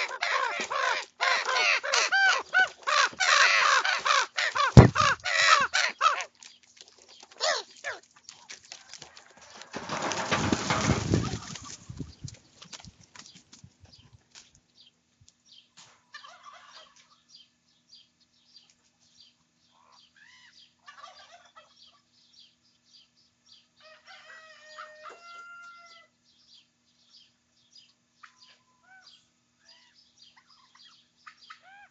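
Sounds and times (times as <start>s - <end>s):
young ravens calling: 0.0s - 6.4s, 7.4s - 8.0s.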